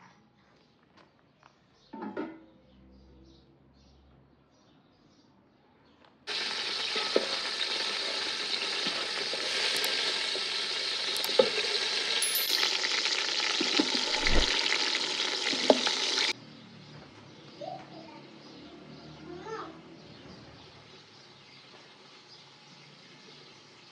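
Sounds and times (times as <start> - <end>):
food sizzling in frying: 6.3 - 16.4.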